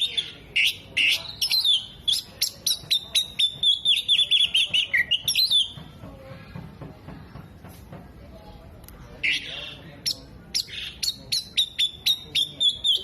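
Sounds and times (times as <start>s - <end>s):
bird singing: 0.0s - 5.8s, 9.2s - 13.0s.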